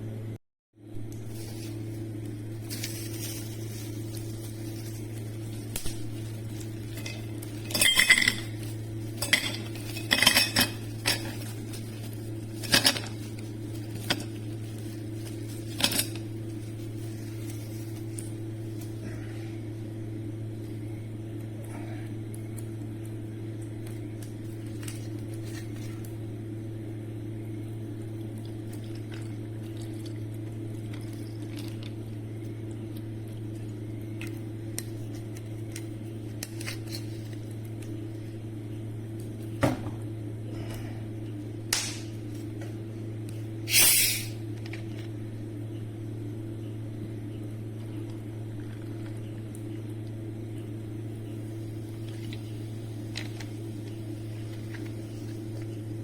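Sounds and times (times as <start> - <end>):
steady low hum: 0.0 - 56.0
dishes and cutlery clinking: 7.0 - 8.5.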